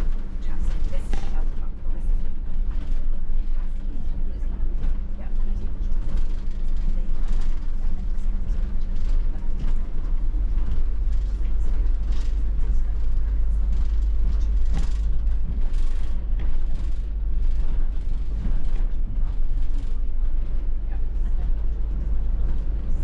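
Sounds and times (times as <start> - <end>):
bus engine and road rumble: 0.0 - 23.0
small rattles and clicks: 5.9 - 20.6.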